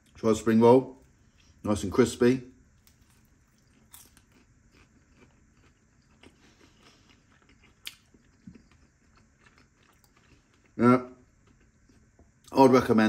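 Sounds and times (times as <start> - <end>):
chewing crispy food: 2.6 - 12.6.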